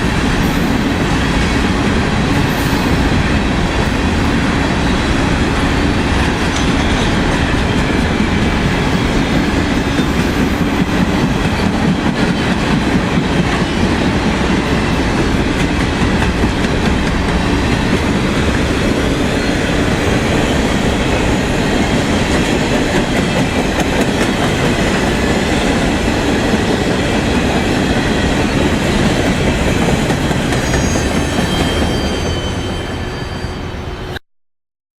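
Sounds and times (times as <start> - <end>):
train wheels clattering on track: 0.0 - 32.8
high wheel squeal: 30.3 - 34.2.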